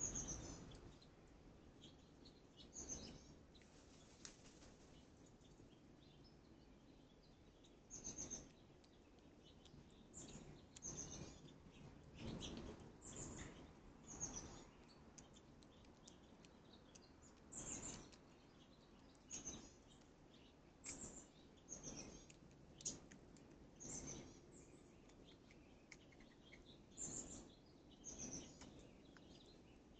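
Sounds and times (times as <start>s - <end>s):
faint bird chirps: 0.0s - 29.9s.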